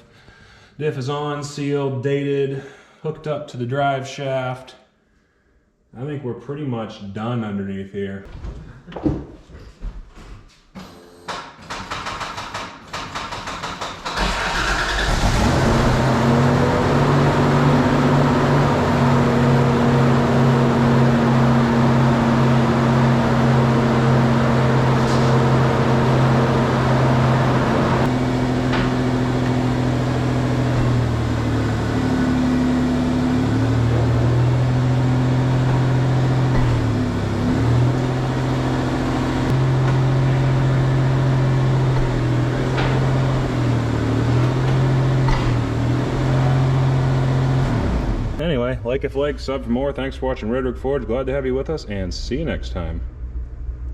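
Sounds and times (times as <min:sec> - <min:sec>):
engine starter cranking: 0:10.8 - 0:16.0
engine running: 0:14.0 - 0:50.1.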